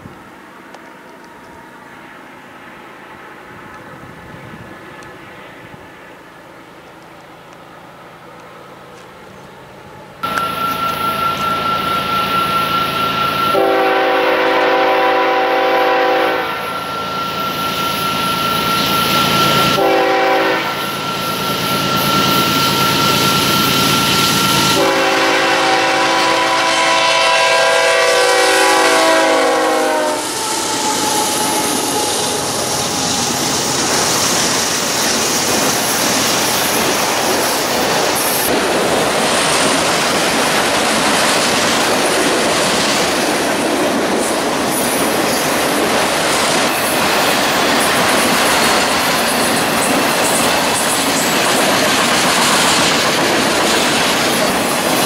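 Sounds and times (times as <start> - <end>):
steady high whine: 0.0 - 14.0, 16.3 - 40.7
train rumbling past: 0.0 - 55.0
locomotive air horn blasts: 10.2 - 17.2, 18.3 - 32.9
wheels clacking over rail joints: 30.4 - 55.0.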